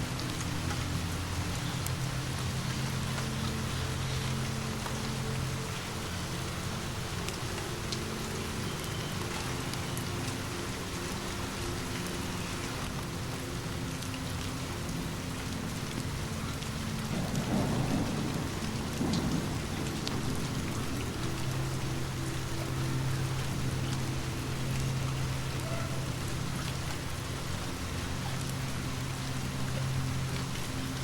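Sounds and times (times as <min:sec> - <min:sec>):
steady rain: 0:00.0 - 0:31.0
distant thunder rumbling: 0:17.1 - 0:23.8.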